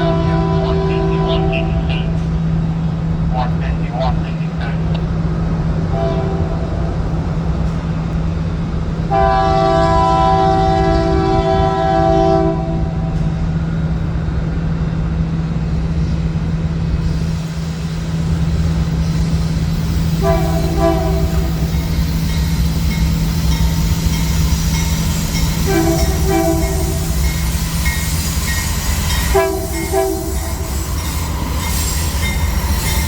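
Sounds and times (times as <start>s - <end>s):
locomotive horn blasts: 0.0s - 2.2s, 5.9s - 6.6s, 9.1s - 13.0s, 20.2s - 21.7s, 25.6s - 27.2s, 29.3s - 30.7s
train rumbling: 0.0s - 33.0s.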